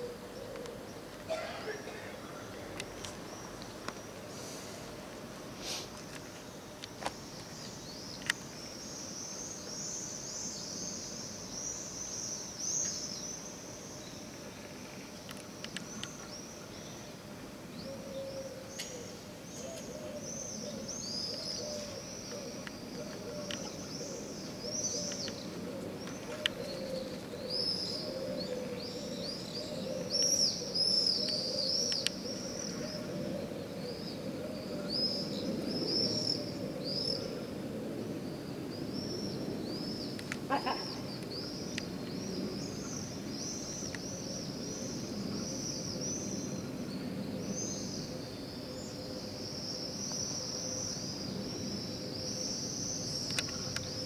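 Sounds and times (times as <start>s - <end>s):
steady low hum: 0.0s - 54.0s
birds chirping: 5.6s - 37.5s.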